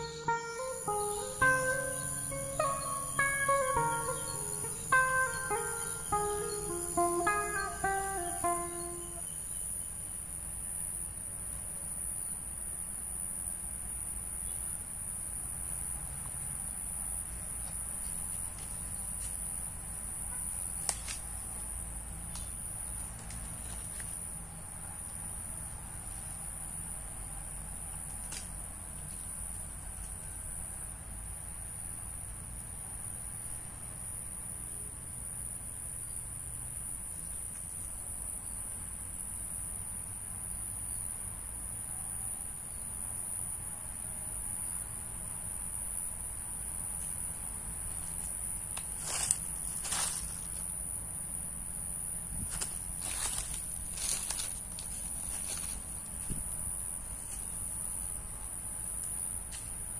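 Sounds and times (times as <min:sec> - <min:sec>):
high-pitched insect drone: 0:00.0 - 0:09.6, 0:49.0 - 0:50.7, 0:52.4 - 0:55.9.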